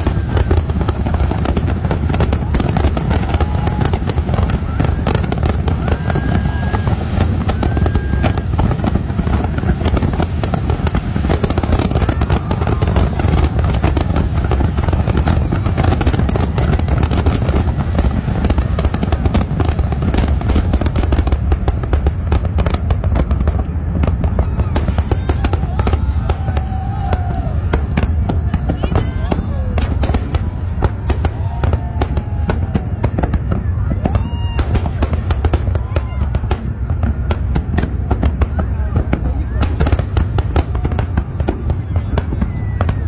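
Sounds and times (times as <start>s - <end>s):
fireworks bangs: 0.0s - 43.0s.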